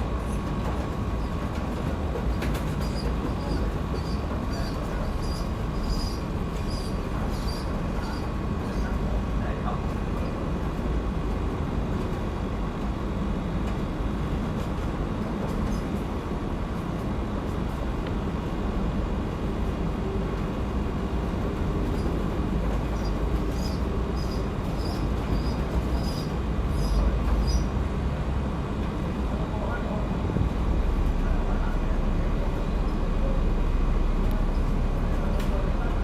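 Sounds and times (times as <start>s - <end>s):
vehicle rumbling: 21.1s - 36.0s.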